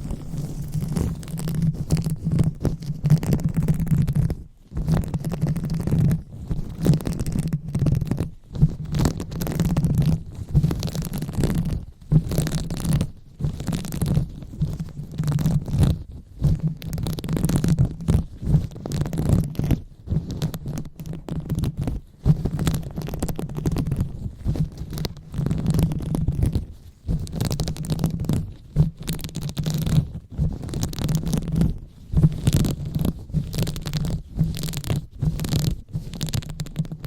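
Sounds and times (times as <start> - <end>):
hands rubbing on microphone: 0.0 - 37.0.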